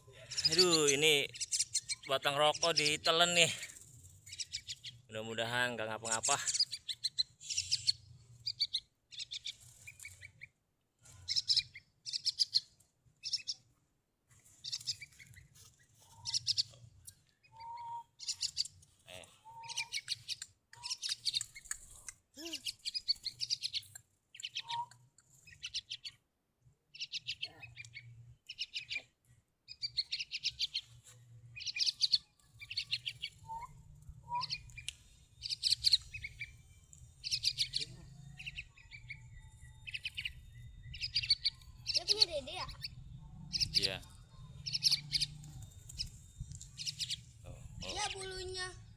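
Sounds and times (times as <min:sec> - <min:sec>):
young bird buzzy chirps: 0:00.2 - 0:05.0, 0:06.1 - 0:10.5, 0:11.2 - 0:13.6, 0:14.6 - 0:15.3, 0:16.0 - 0:16.8, 0:17.4 - 0:18.8, 0:19.5 - 0:26.2, 0:26.9 - 0:31.0, 0:31.6 - 0:48.9.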